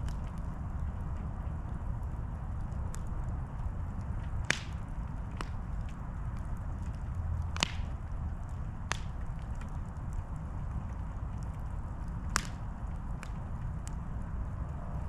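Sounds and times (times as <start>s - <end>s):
campfire rumbling: 0.0s - 15.0s
logs popping: 6.8s - 8.0s.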